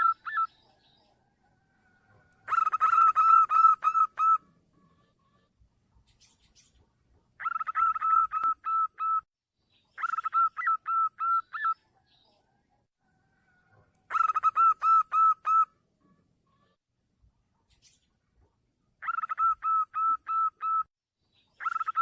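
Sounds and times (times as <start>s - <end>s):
dove cooing: 2.1s - 5.2s, 7.4s - 9.2s, 10.0s - 11.8s, 14.1s - 15.7s, 19.0s - 20.9s.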